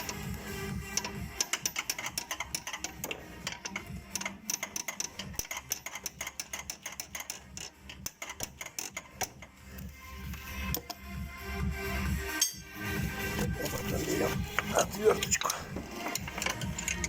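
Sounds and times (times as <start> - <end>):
metallic clicking and tapping: 0.0 - 11.1, 12.3 - 17.0.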